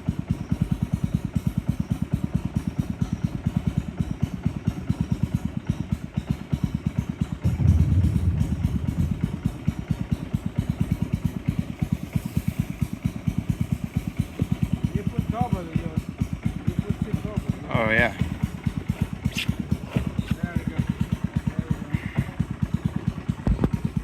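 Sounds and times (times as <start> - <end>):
low rumble: 7.4 - 10.4.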